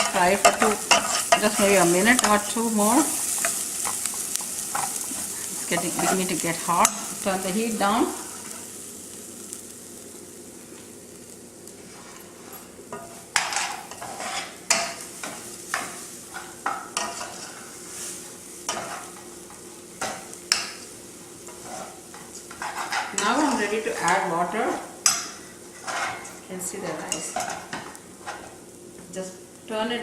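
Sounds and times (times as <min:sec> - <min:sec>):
spoon scraping and stirring rice: 0:00.0 - 0:07.2, 0:11.7 - 0:20.3, 0:21.5 - 0:24.2, 0:25.0 - 0:26.4
rice sizzling in a pan: 0:00.0 - 0:30.0.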